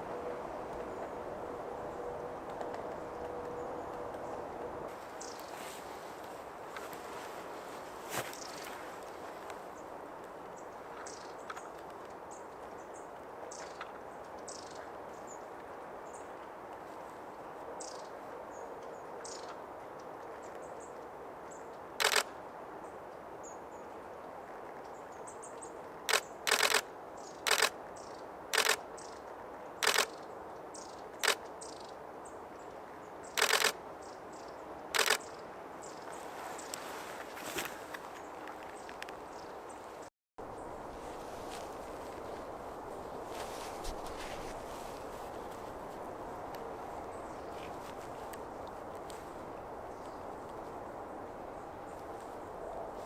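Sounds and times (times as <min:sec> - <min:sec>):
steady background hiss: 0:00.0 - 0:53.0
camera shutter bursts: 0:22.0 - 0:22.3, 0:26.1 - 0:26.9, 0:27.5 - 0:27.8, 0:28.6 - 0:28.8, 0:29.8 - 0:30.2, 0:33.4 - 0:33.8, 0:35.0 - 0:35.3.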